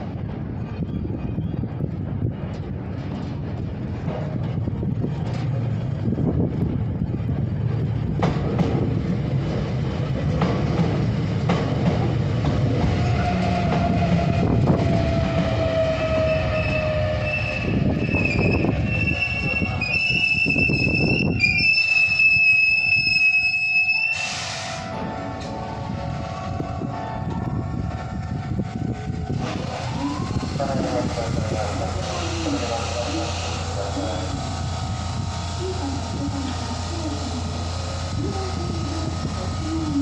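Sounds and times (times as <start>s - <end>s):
electric train wheels rumbling: 0.0s - 40.0s
high wheel squeal: 15.4s - 24.9s.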